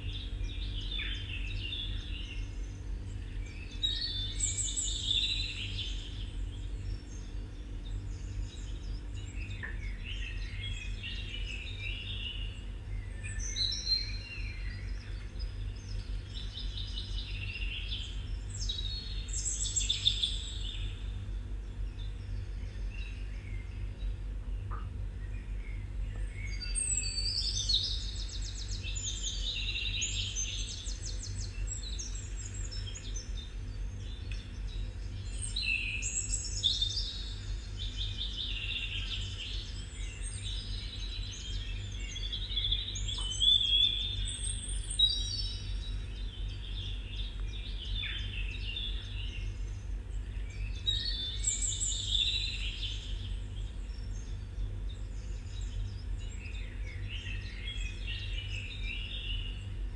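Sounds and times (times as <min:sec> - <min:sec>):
birds singing: 0:00.0 - 0:59.9
steady low hum: 0:00.0 - 0:59.9.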